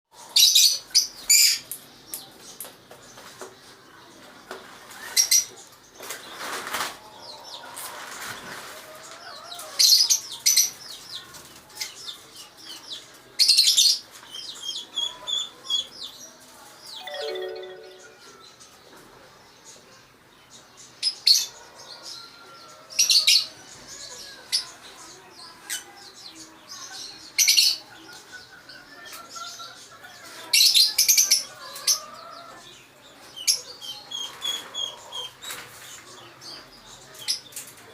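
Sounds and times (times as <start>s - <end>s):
birds chirping: 16.8s - 19.0s.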